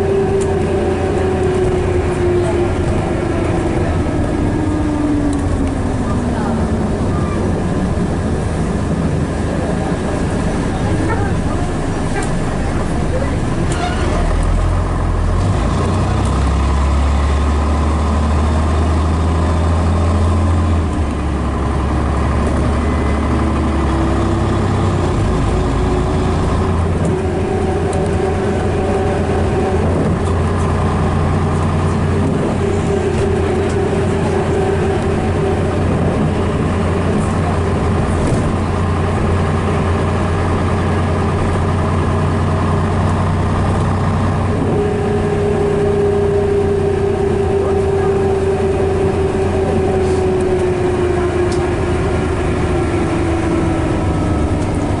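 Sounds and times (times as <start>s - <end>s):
rising whine: 0.0s - 10.8s, 19.6s - 55.0s
bus diesel engine droning: 0.0s - 55.0s.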